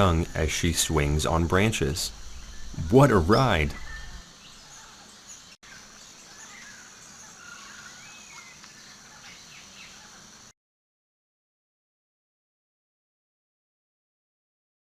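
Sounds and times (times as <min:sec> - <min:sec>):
steady hiss: 0:00.0 - 0:10.5.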